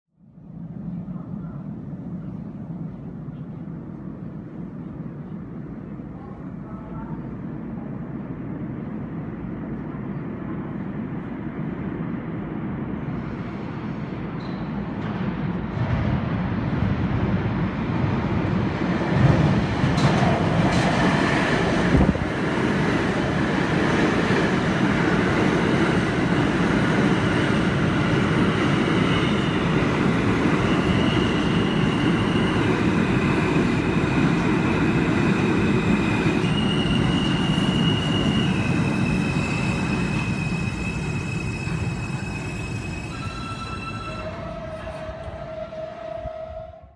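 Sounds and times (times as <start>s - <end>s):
subway train wheels rumbling: 0.2s - 46.9s
wheel squeal: 35.8s - 46.8s.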